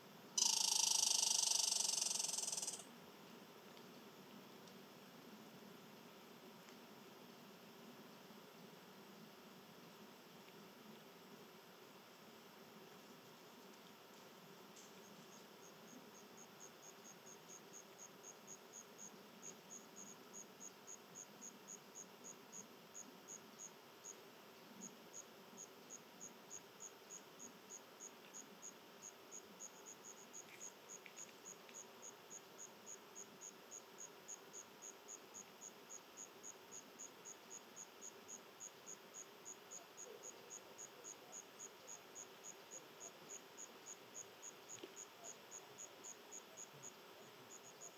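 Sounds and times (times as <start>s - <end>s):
insect chirping: 0.3s - 2.9s, 13.0s - 47.9s.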